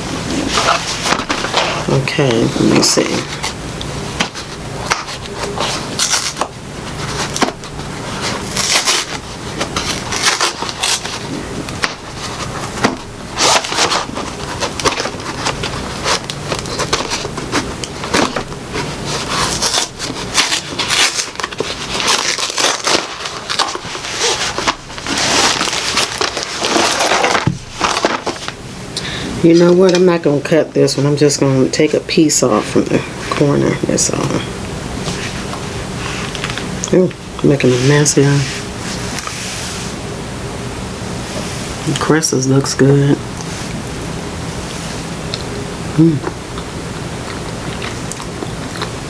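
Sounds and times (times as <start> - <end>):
packaging crackling and crinkling: 0.3 - 28.6.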